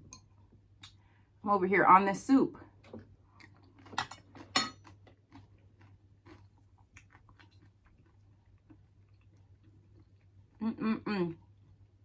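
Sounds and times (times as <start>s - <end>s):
person chewing soup: 3.0s - 10.6s.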